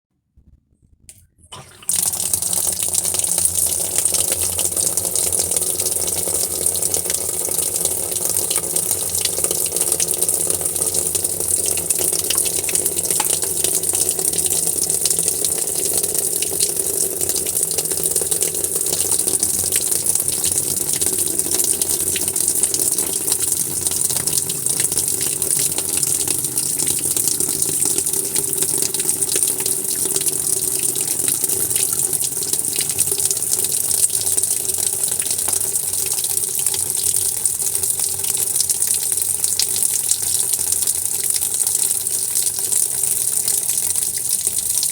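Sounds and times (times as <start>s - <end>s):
running water rushing: 1.5s - 37.6s.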